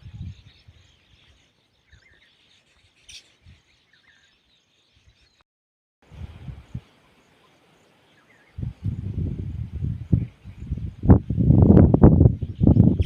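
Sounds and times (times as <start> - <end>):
soft bird chirps: 0.0 - 5.4, 6.5 - 11.2.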